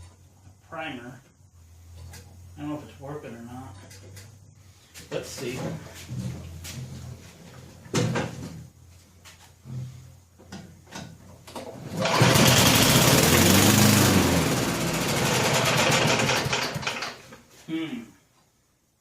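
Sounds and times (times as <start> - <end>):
lawn mower engine running: 11.6 - 17.2.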